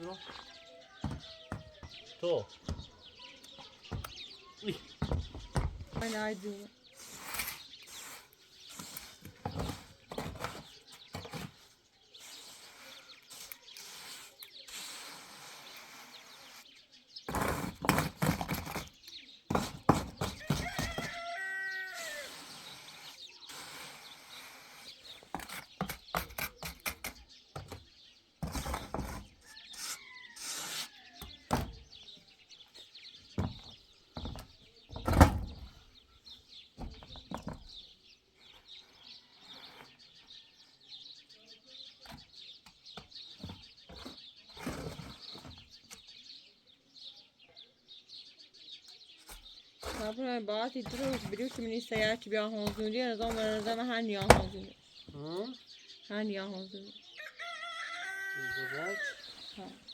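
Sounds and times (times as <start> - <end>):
birds chirping: 0.0 - 59.9
knocks and thuds: 1.0 - 3.0, 3.9 - 6.2, 33.4 - 35.8, 36.8 - 37.8, 50.9 - 54.7.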